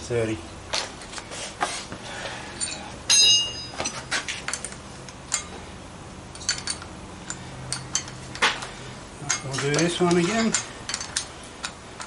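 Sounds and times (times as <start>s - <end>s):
metal object clinking: 2.6s - 5.5s, 9.2s - 11.8s
tools and parts clicking: 2.6s - 5.5s, 6.3s - 12.0s.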